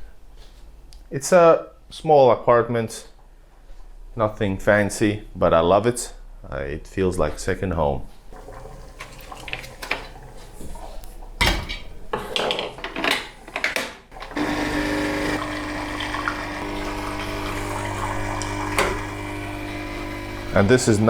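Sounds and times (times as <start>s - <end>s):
kitchen clatter: 8.4s - 14.3s
cooking appliance humming: 8.4s - 21.0s.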